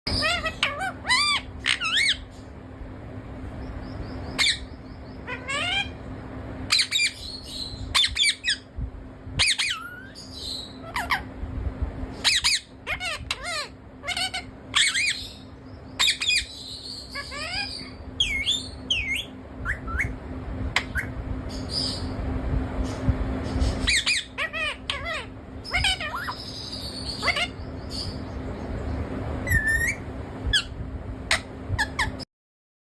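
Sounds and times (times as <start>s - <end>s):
parrot squawking: 0.1s - 2.3s, 4.3s - 6.1s, 6.7s - 8.7s, 9.4s - 11.3s, 12.2s - 20.2s, 20.8s - 22.2s, 23.7s - 28.2s, 29.4s - 32.2s
parrot high whistle: 18.2s - 20.1s, 29.4s - 30.0s.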